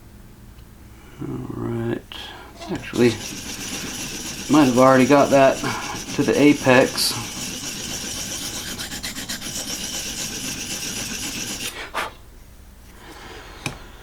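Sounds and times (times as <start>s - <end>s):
sharpener rasping on knife edge: 2.6s - 11.8s.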